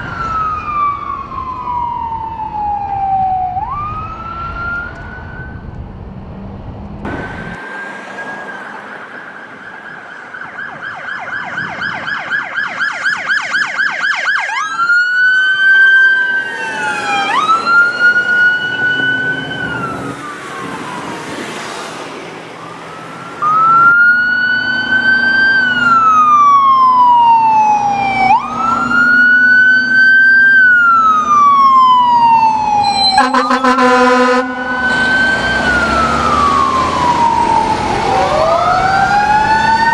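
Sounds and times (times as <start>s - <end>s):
electronic siren wailing: 7.1s - 21.2s, 22.6s - 39.9s
rapid pulsing horn blast: 32.7s - 37.2s.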